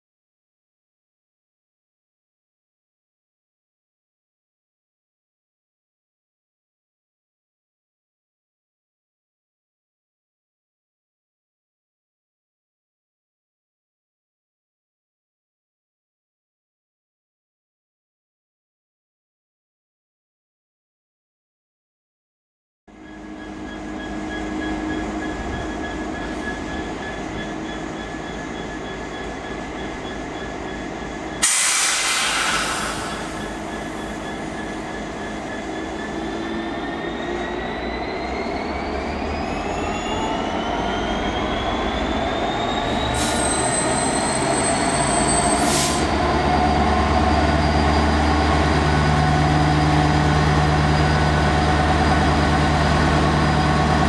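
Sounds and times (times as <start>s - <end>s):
diesel locomotive engine running: 22.9s - 54.0s
air hiss blast: 31.4s - 33.4s
rising engine whine: 32.3s - 54.0s.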